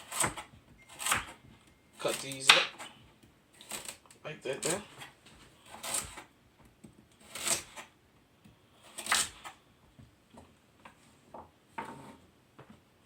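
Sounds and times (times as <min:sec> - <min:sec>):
knife chopping on cutting board: 0:00.0 - 0:01.4.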